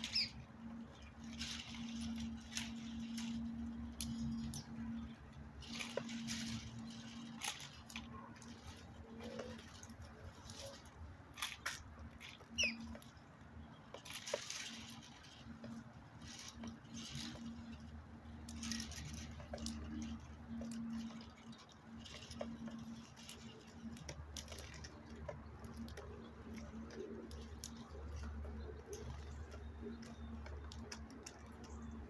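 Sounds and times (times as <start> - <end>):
bird chirp: 0.0 - 1.4, 12.4 - 13.0
birds pecking and scratching: 0.0 - 32.0.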